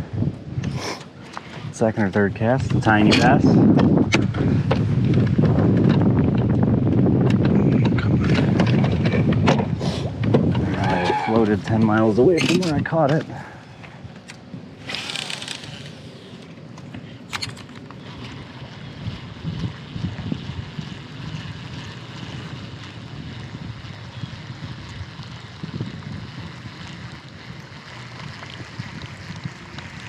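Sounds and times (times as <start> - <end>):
wind buffeting microphone: 0.0 - 17.2, 18.0 - 30.0
river water rustling: 13.6 - 24.1.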